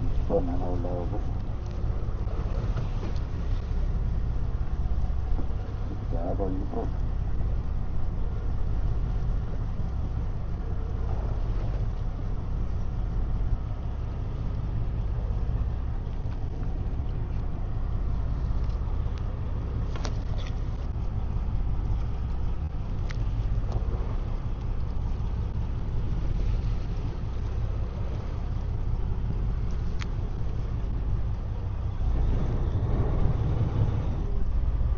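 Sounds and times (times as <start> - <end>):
boat engine rumble: 0.0 - 34.9
faint clicks: 23.0 - 23.8, 29.6 - 30.7.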